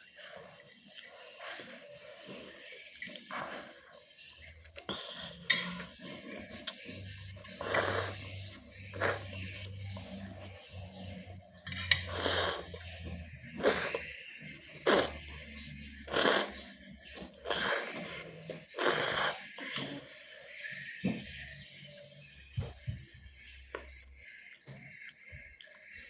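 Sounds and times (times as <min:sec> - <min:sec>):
person slurping noodles: 0:01.3 - 0:04.0, 0:04.8 - 0:09.6, 0:11.7 - 0:12.8, 0:13.5 - 0:14.0, 0:14.7 - 0:15.4, 0:16.1 - 0:20.1.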